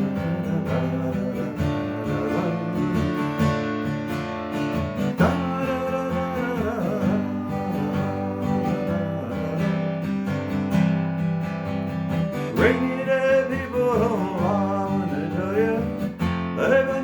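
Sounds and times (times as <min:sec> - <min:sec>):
acoustic guitar strummed and picked: 0:00.0 - 0:17.0.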